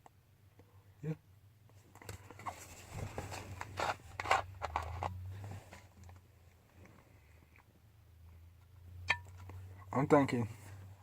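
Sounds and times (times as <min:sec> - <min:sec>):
handling scrapes and rustles: 0:01.8 - 0:07.0.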